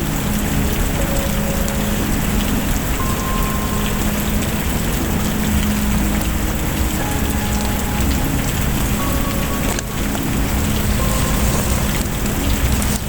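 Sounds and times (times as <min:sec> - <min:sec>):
heavy rain: 0:00.0 - 0:13.0
wood fire crackling: 0:00.0 - 0:13.0
low rumble: 0:08.1 - 0:13.0.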